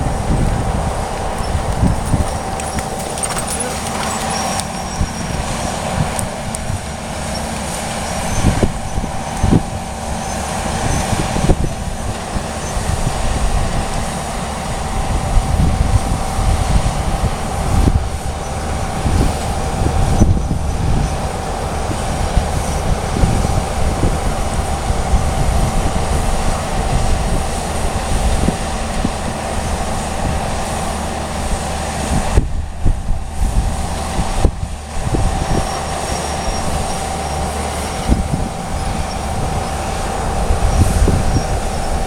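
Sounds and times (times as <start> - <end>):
thin steady whine: 0.0 - 42.0
vehicle rumble: 0.0 - 42.0
knocks and rattles: 1.4 - 5.1.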